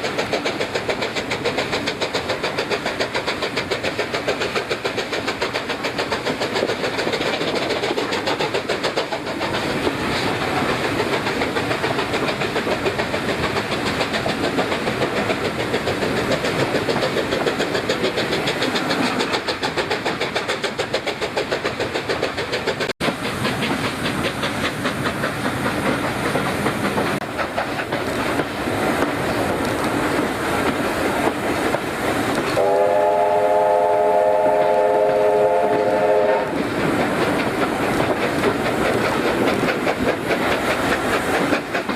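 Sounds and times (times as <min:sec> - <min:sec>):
steam train clattering: 0:00.0 - 0:41.9
steam train whistle chord: 0:32.6 - 0:36.5.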